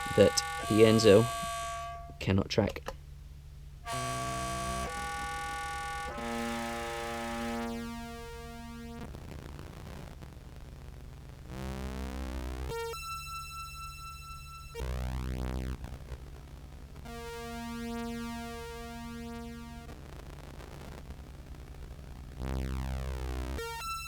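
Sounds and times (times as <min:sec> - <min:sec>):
pulsing electronic synth tones: 0:00.0 - 0:02.2, 0:03.9 - 0:09.0, 0:11.9 - 0:16.0, 0:17.1 - 0:19.9, 0:22.4 - 0:24.0
steady high synth tone: 0:00.0 - 0:02.2, 0:03.9 - 0:08.2, 0:12.7 - 0:15.6
synth pitch sweep: 0:03.9 - 0:09.0.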